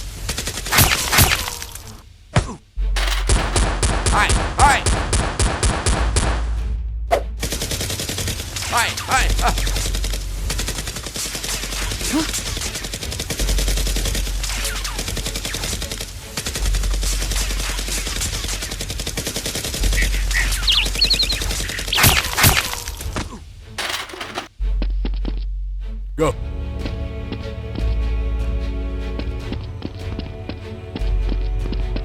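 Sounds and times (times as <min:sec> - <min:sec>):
low bass hum: 0:06.0 - 0:07.4.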